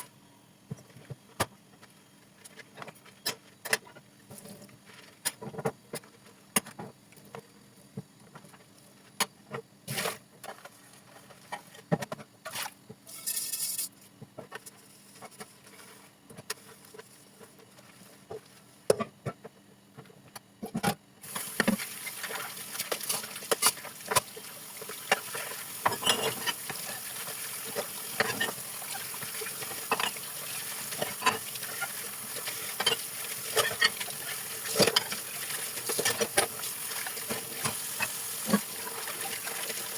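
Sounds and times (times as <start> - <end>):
tap water running: 21.2 - 39.9
dishes clinking: 25.1 - 27.0, 30.9 - 35.2.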